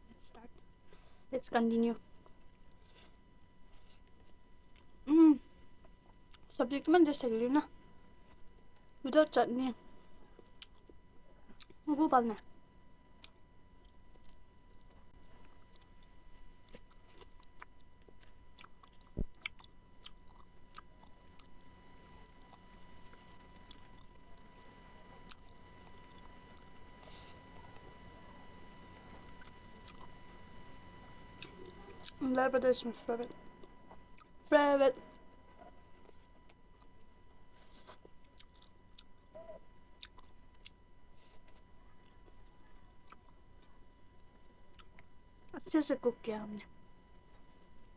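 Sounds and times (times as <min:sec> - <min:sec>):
person chewing: 0:10.3 - 0:11.8, 0:13.2 - 0:16.0, 0:16.6 - 0:21.6, 0:22.2 - 0:27.9, 0:29.1 - 0:30.2, 0:31.4 - 0:32.3, 0:35.0 - 0:43.8, 0:44.7 - 0:45.2.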